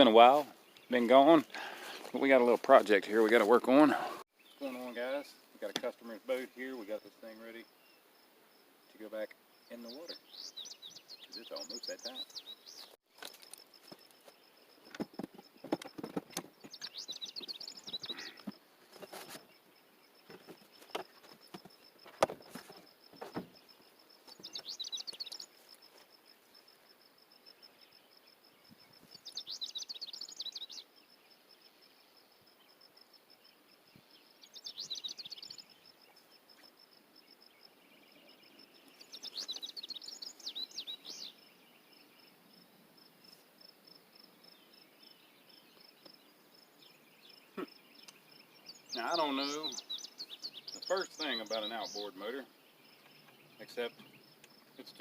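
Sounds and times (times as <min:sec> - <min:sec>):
songbird chirping song: 0:00.0 - 0:55.0
sharp knocks and clatters: 0:14.9 - 0:16.8.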